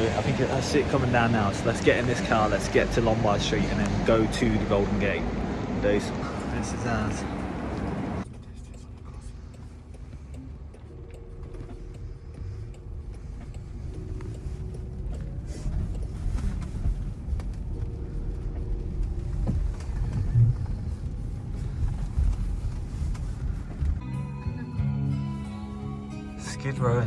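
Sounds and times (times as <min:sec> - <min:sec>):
road and tyre rumble: 0:00.0 - 0:27.0.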